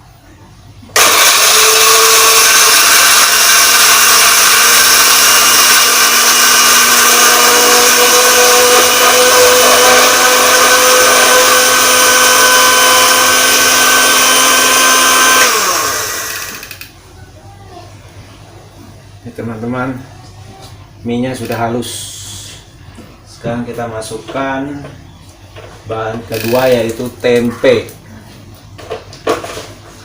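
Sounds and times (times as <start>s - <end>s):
blender motor spinning down: 1.0s - 16.9s
electric blender running: 1.0s - 16.9s.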